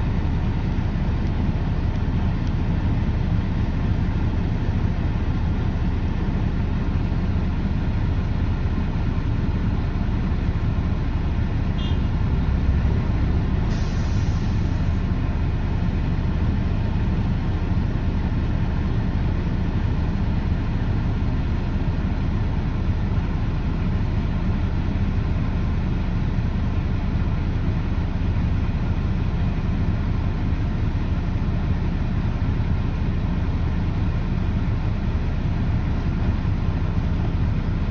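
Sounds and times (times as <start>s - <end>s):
heavy diesel engine droning: 0.0s - 37.9s
air hiss: 13.7s - 15.0s.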